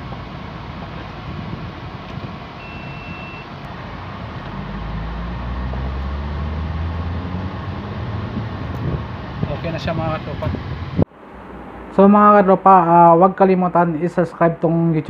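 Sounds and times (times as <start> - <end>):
car engine accelerating: 0.0 - 12.7
short high beep: 2.6 - 3.5.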